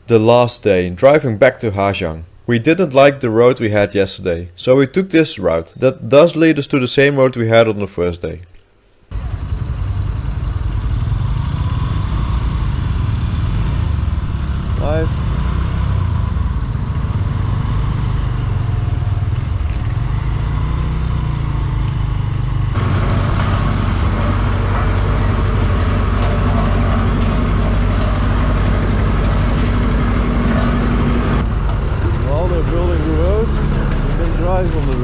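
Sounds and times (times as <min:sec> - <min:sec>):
motorbike engine running: 0:09.1 - 0:35.0
wind and road noise: 0:09.1 - 0:35.0.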